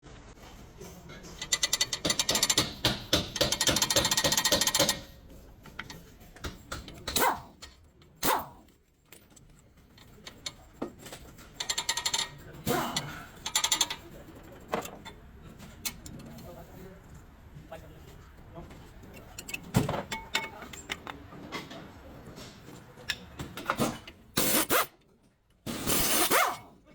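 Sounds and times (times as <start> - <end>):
ratchet wrench clicking: 1.4 - 5.0, 11.6 - 12.3, 13.4 - 14.0.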